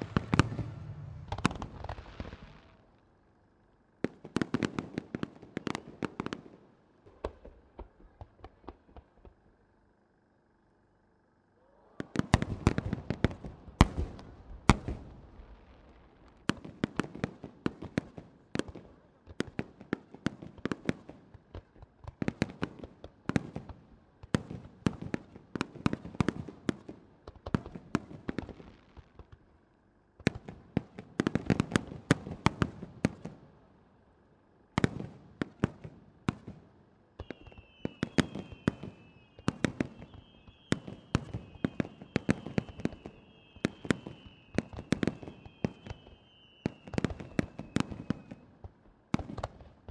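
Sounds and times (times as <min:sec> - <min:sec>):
faint whistle: 0:00.0 - 0:02.7, 0:37.2 - 0:48.6
fireworks bursting with crackles: 0:00.0 - 0:03.2, 0:12.0 - 0:29.6, 0:34.8 - 0:49.9.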